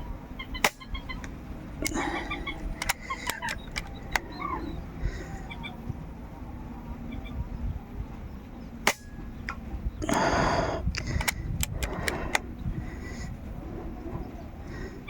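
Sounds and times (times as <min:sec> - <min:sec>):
air rifle shot crack: 0:00.6 - 0:01.0, 0:08.8 - 0:09.2
quick run of sharp clicks: 0:00.6 - 0:04.3, 0:10.9 - 0:12.5.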